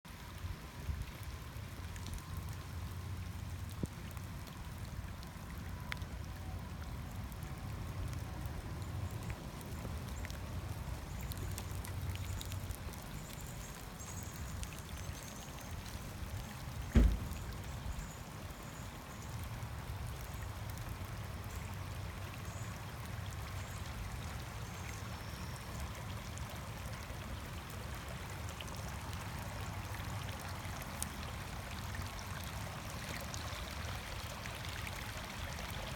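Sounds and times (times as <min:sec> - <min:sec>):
steady rain: 0:00.1 - 0:35.9
water trickling: 0:00.1 - 0:35.9
sharp thump: 0:16.9 - 0:17.4.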